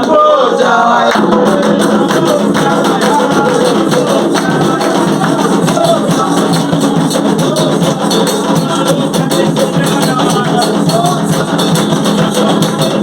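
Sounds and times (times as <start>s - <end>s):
people chanting: 0.0s - 13.0s
hand percussion with jingles: 1.2s - 13.0s.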